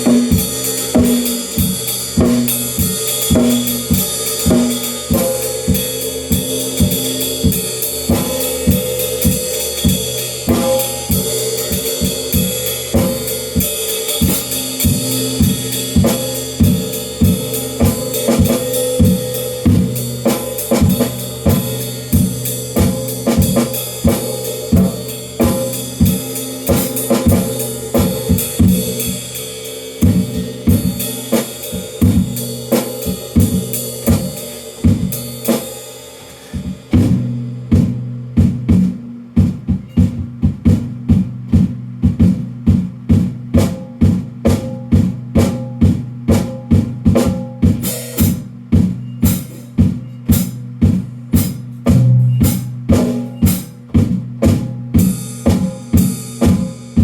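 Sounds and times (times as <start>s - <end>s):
bass drum: 0.0s - 35.7s, 36.6s - 57.0s
ringing cymbals: 0.0s - 36.5s, 47.8s - 53.8s
hi-hat strikes: 0.0s - 57.0s
snare drum: 36.3s - 57.0s.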